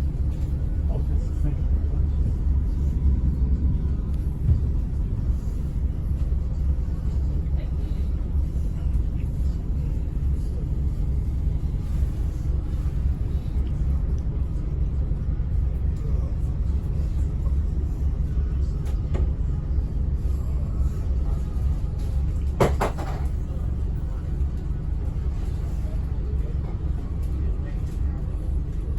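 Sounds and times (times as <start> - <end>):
bus engine and road rumble: 0.0 - 28.9.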